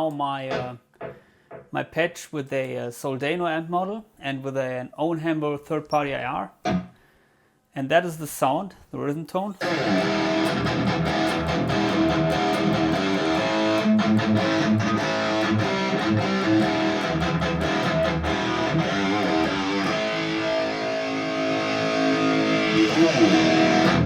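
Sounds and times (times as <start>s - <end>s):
distorted electric guitar chords: 6.6s - 6.9s, 9.6s - 24.0s.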